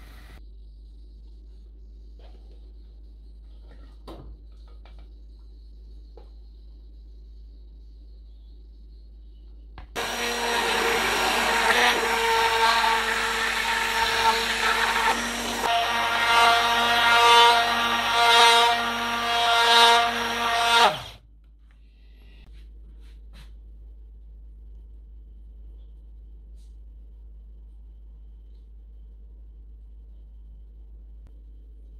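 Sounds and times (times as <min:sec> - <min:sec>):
immersion blender motor whine: 0:10.0 - 0:21.2.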